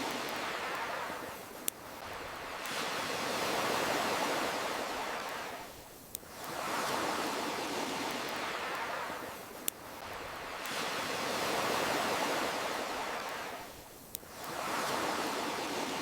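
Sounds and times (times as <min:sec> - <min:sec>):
campfire popping: 0:00.0 - 0:03.0, 0:03.6 - 0:14.6
waves washing in: 0:00.0 - 0:16.0.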